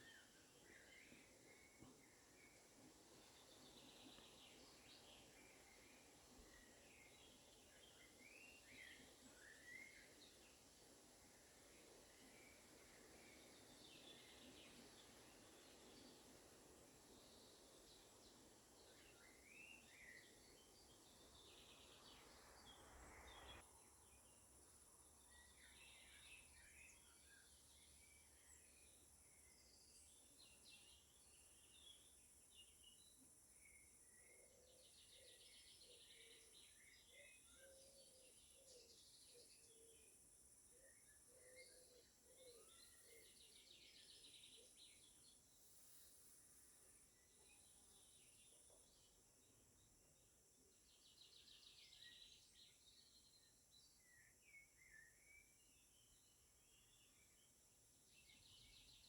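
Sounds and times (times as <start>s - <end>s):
songbirds chirping and trilling: 0.0s - 24.4s, 25.1s - 45.6s, 46.8s - 59.0s
steady high hiss: 0.0s - 25.3s, 42.8s - 50.8s.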